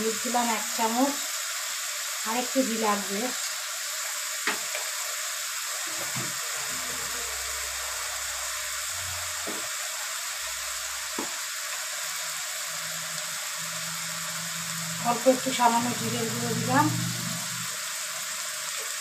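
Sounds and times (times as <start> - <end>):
onions frying in oil: 0.0 - 19.0.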